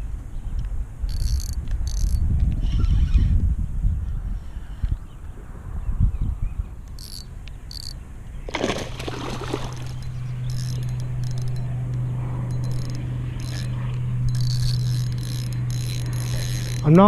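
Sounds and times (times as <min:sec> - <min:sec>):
steady low hum: 0:00.0 - 0:02.7, 0:05.4 - 0:17.0
fishing reel drag clicking: 0:01.1 - 0:02.2, 0:06.9 - 0:08.0, 0:09.4 - 0:17.0
fish splashing at surface: 0:08.5 - 0:10.0.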